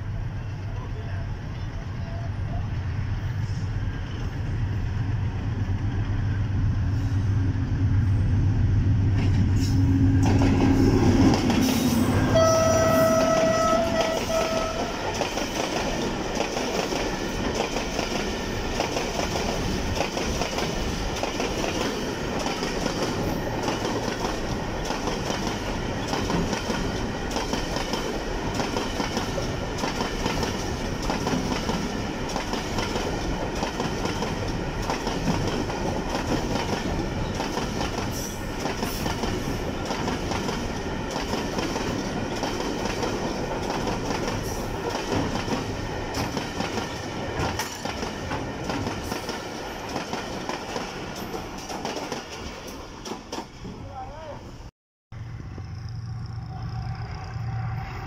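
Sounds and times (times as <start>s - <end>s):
diesel locomotive engine rumble: 0.0s - 49.2s, 55.2s - 58.0s
train horn: 11.8s - 15.2s, 55.3s - 58.0s.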